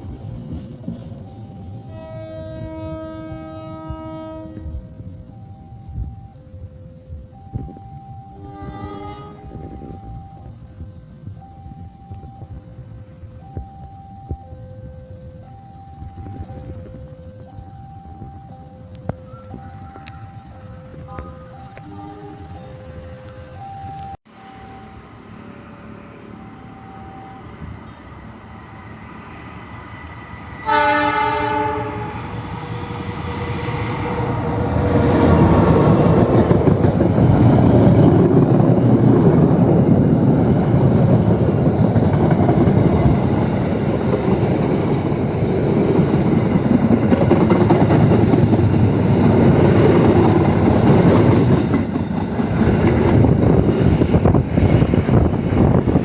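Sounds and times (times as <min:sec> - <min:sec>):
train rumbling past: 0:00.0 - 0:56.0
locomotive horn blast: 0:01.9 - 0:05.0, 0:08.3 - 0:10.2, 0:21.1 - 0:22.6, 0:30.6 - 0:32.4.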